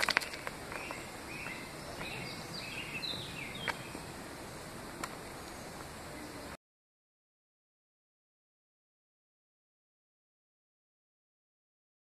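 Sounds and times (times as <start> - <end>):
outdoor hiss: 0.0 - 6.6
birds whistling: 0.1 - 4.7, 5.3 - 6.5.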